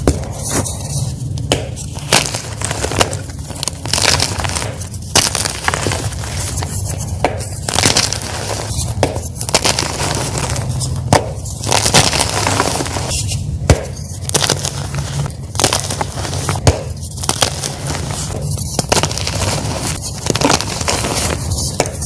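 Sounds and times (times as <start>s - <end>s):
chalk blocks being crushed: 0.0s - 22.0s.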